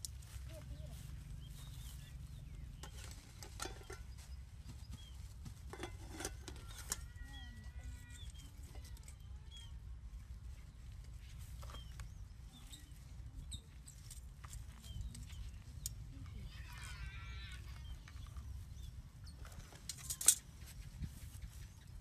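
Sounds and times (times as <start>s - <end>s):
bird chirps: 0.5s - 5.3s, 10.7s - 19.8s
metal utensil clinking on pot: 2.8s - 4.2s, 5.7s - 7.0s.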